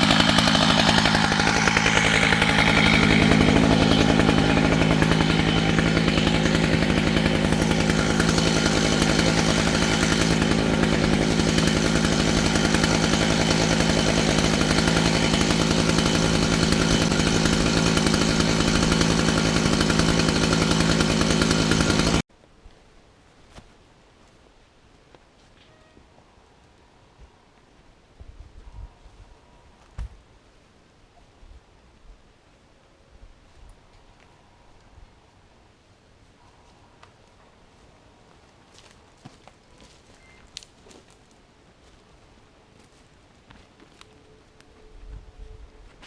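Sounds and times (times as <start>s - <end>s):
chainsaw cutting log: 0.0s - 22.3s.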